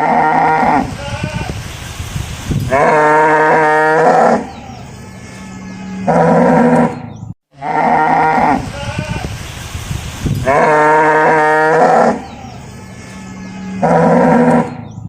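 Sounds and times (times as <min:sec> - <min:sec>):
cow mooing: 0:02.7 - 0:04.8, 0:05.6 - 0:07.0, 0:07.6 - 0:09.3, 0:10.4 - 0:14.8.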